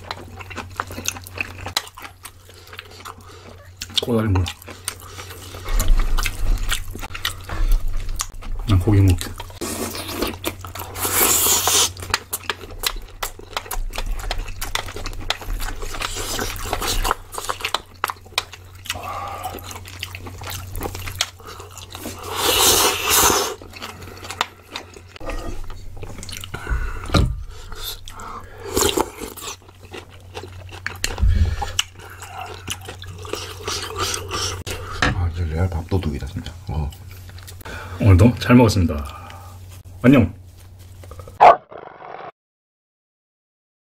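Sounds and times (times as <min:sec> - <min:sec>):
people chewing: 0:00.0 - 0:35.1, 0:35.9 - 0:38.3, 0:38.9 - 0:39.8, 0:40.5 - 0:41.4
slurping from a spoon: 0:22.1 - 0:23.6.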